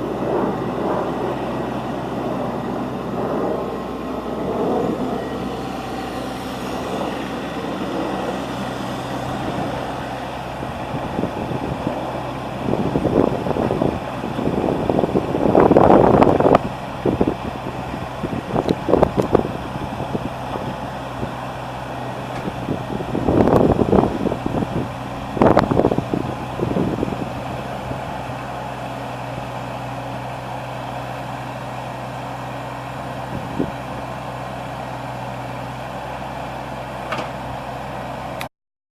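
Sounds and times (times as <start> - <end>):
excavator diesel engine running: 0.0 - 38.5.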